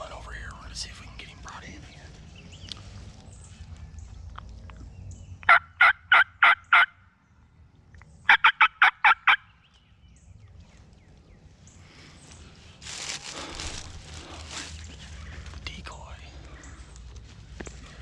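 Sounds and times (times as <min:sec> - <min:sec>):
turkey call yelps: 0:05.4 - 0:07.0, 0:08.3 - 0:09.5.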